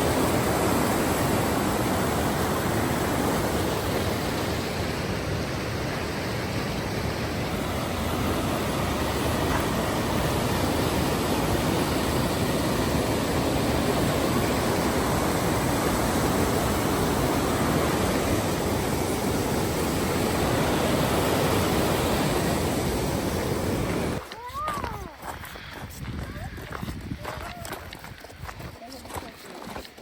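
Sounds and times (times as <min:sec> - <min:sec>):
loud steady rushing noise: 0:00.0 - 0:24.2.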